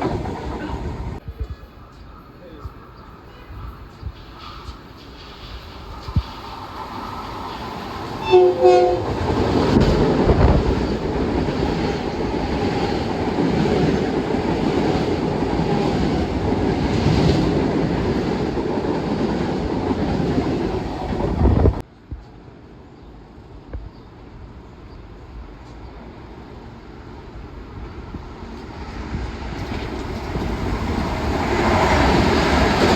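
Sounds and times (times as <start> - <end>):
train wheels on rail: 0.0 - 32.9
train horn blasts: 8.2 - 9.2.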